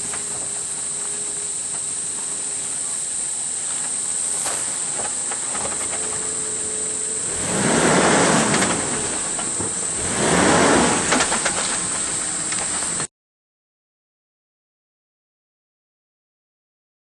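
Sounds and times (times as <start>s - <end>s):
steady high hiss: 0.0s - 13.1s
vehicle splashing through water: 7.0s - 13.0s.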